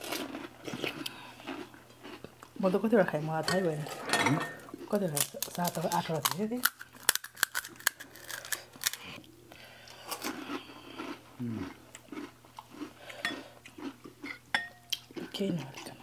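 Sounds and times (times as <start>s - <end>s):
crunching crisp shells: 0.0s - 2.3s, 4.8s - 9.2s.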